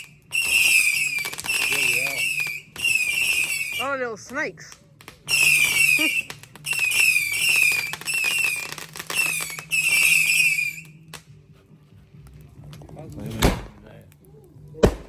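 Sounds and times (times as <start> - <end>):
firework whistles: 0.0 - 4.1, 5.1 - 11.1.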